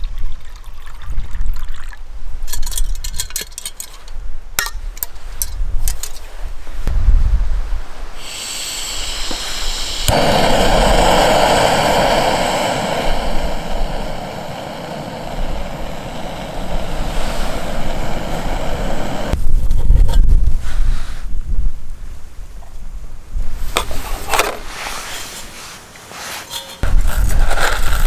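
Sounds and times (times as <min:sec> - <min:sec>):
gas burner rushing: 0:08.0 - 0:19.4
gas hissing from valve: 0:08.0 - 0:19.4.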